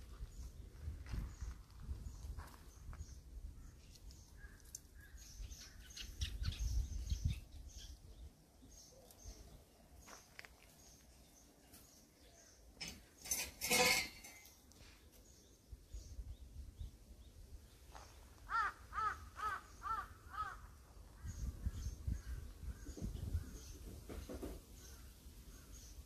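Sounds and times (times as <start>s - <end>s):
small birds chirping: 0.0s - 13.4s, 14.2s - 26.0s.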